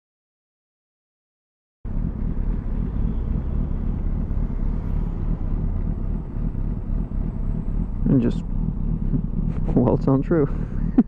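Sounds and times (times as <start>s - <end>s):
motorcycle engine rumbling: 1.9s - 11.0s.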